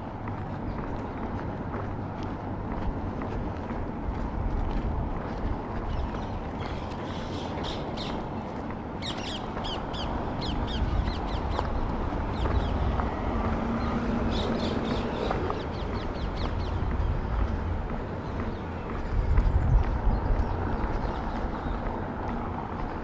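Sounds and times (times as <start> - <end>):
low city rumble: 0.0 - 23.0
birds chirping: 5.8 - 22.5.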